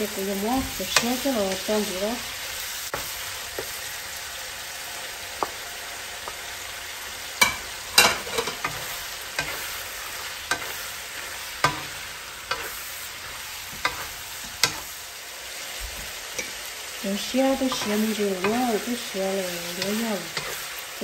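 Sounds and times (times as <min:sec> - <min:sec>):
sizzling hiss in a pan: 0:00.0 - 0:21.0
utensil knocking and scraping a pan: 0:11.6 - 0:14.9.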